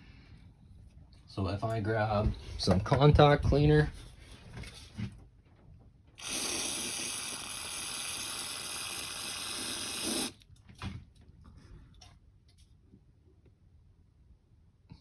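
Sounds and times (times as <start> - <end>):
aerosol spray hissing: 6.2 - 10.4.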